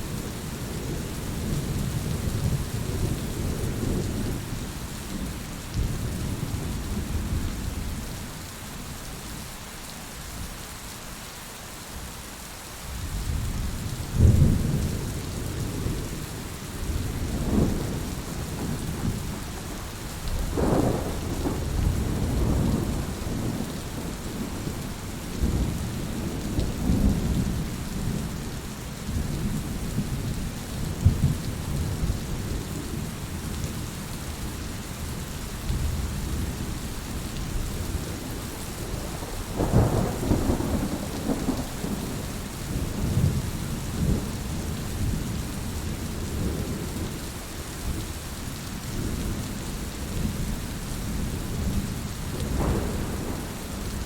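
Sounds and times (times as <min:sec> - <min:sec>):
heavy rain pouring: 0:00.0 - 0:54.0
thunder rumbling: 0:20.4 - 0:28.4, 0:37.4 - 0:45.2, 0:51.2 - 0:54.0.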